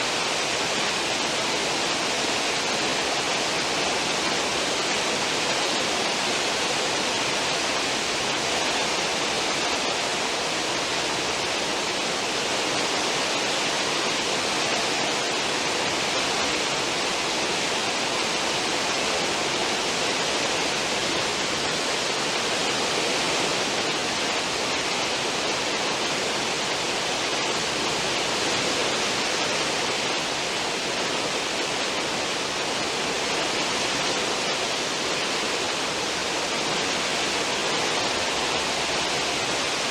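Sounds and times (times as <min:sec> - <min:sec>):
ship wake water rushing: 0:00.0 - 0:39.9.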